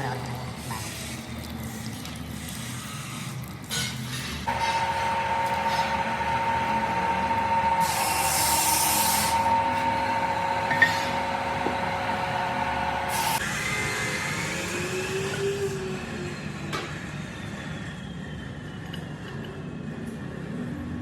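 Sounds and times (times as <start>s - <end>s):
workshop machine motor whine: 4.5s - 18.4s.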